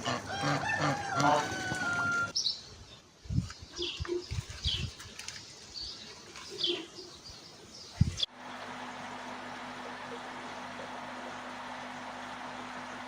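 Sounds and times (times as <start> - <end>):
small birds chirping: 2.3 - 8.3.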